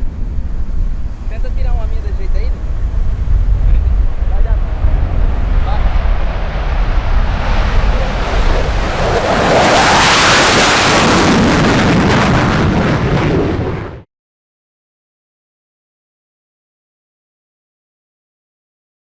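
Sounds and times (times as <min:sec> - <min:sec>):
wind buffeting microphone: 0:00.0 - 0:14.0
fighter jet engine roar: 0:00.0 - 0:14.1.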